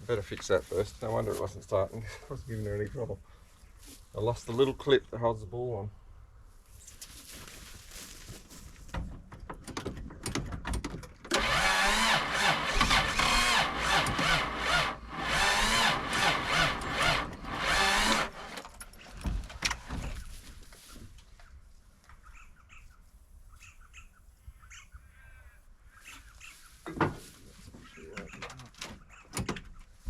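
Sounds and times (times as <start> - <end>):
short engine bursts: 11.3 - 18.6
engine cranking on starter: 11.3 - 18.7
faint bird chirps: 22.2 - 26.8.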